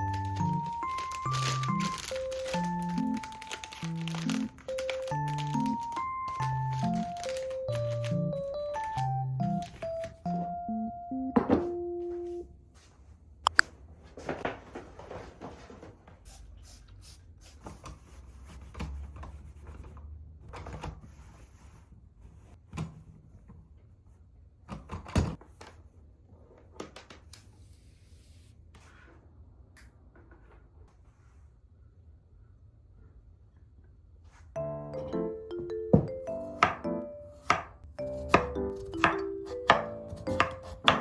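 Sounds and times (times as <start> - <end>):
kitchen items knocking and clattering: 11.4 - 11.8.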